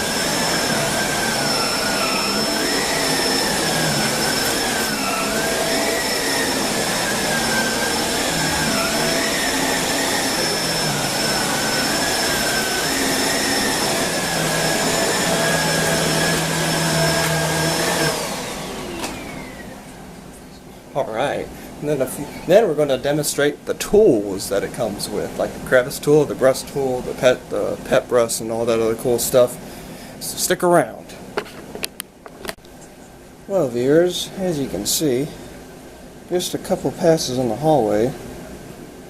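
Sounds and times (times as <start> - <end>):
vacuum cleaner running: 0.0 - 20.1.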